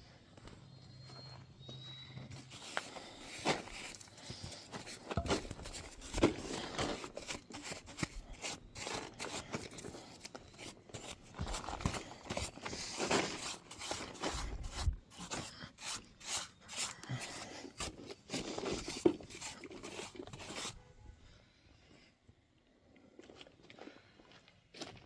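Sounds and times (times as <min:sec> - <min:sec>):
scratchy rubbing strokes on wood: 0:02.3 - 0:20.8.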